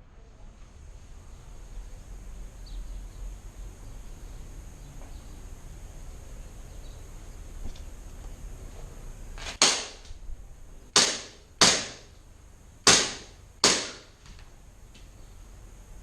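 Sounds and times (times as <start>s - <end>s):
airsoft gun shots: 9.4s - 10.1s, 10.9s - 12.1s, 12.8s - 14.2s.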